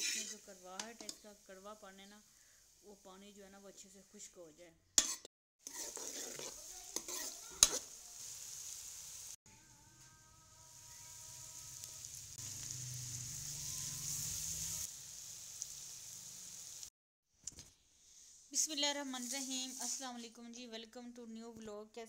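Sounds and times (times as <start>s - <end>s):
vegetables sizzling in pan: 0.0s - 4.3s, 5.0s - 9.4s, 10.0s - 16.9s, 18.6s - 20.5s.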